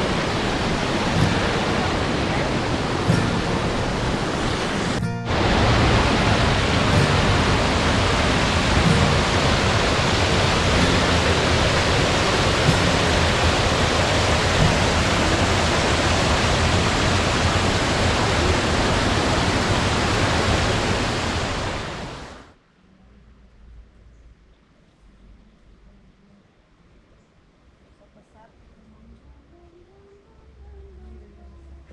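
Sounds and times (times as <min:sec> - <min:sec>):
water rushing: 0:00.0 - 0:22.5.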